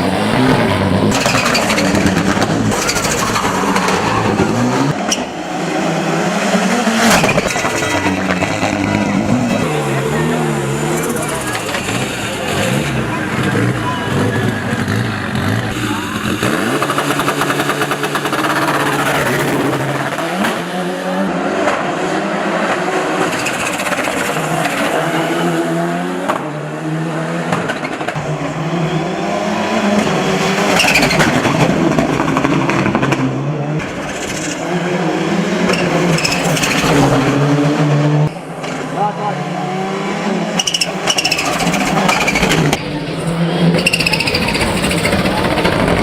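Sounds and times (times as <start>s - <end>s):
car engine revving through gears: 0.0s - 46.0s.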